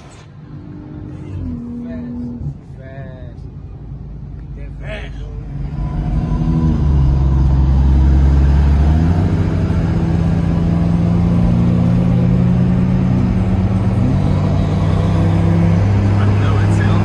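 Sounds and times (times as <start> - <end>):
car engine at full throttle: 5.3 - 17.0.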